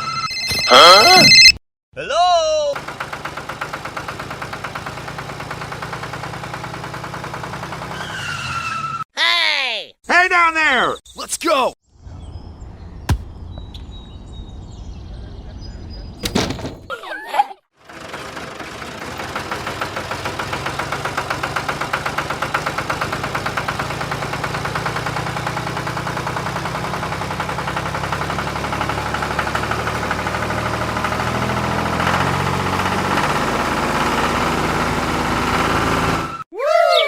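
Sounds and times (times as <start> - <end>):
tractor engine chugging: 2.8 - 7.9, 19.0 - 35.4.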